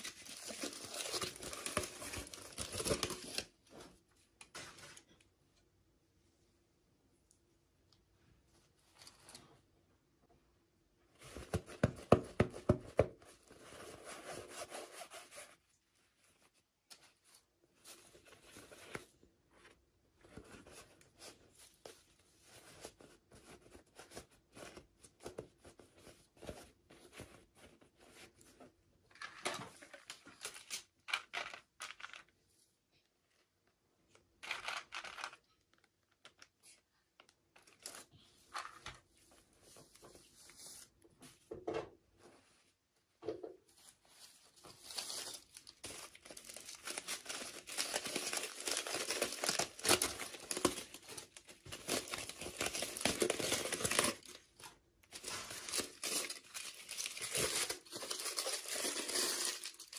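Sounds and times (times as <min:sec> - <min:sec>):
toy packaging rubbing and tearing: 0:44.8 - 0:54.4, 0:55.2 - 0:59.9.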